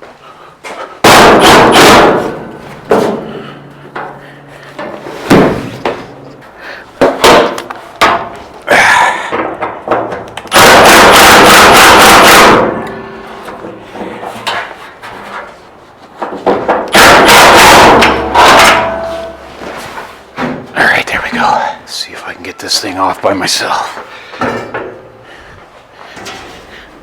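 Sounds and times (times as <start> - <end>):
metallic knocks on sheet metal: 1.0 - 3.3, 4.8 - 6.0, 7.0 - 8.4, 9.4 - 13.8, 16.2 - 19.5
rapid metal clattering: 16.2 - 19.6.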